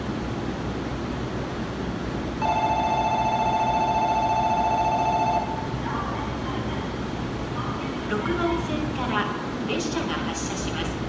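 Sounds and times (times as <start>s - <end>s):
electronic departure bell ringing: 2.4s - 5.7s.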